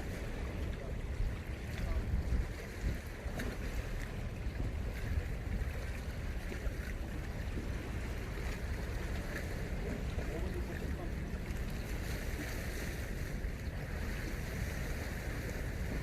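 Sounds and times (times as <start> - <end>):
sea surf washing on shore: 0.0 - 16.0
wind rumbling on microphone: 0.0 - 16.0.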